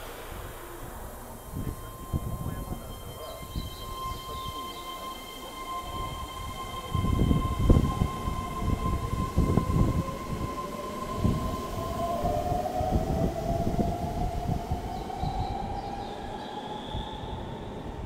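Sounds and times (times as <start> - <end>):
tone rising in pitch: 0.0 - 13.4
electric train running: 0.0 - 18.0
steady high whine: 0.0 - 18.0.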